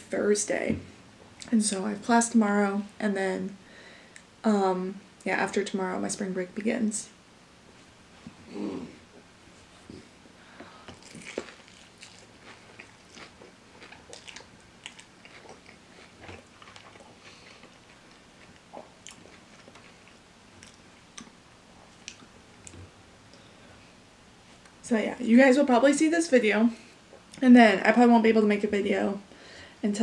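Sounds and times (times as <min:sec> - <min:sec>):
soft crunching of fried chicken: 0:10.7 - 0:22.8.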